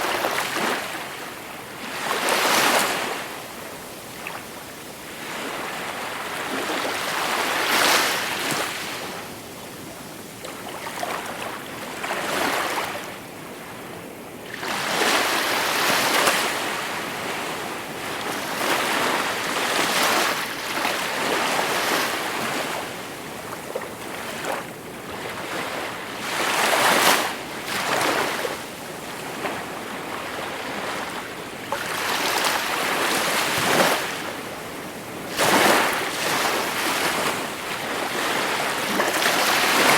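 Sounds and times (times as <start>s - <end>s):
sea waves washing on shore: 25.3s - 39.9s.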